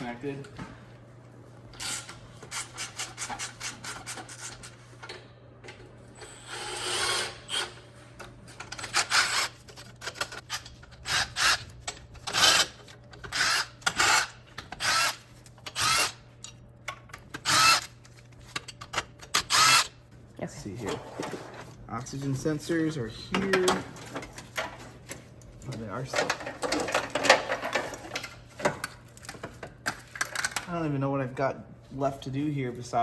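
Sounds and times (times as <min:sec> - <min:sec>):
power tool whirring bursts: 0:06.2 - 0:07.8.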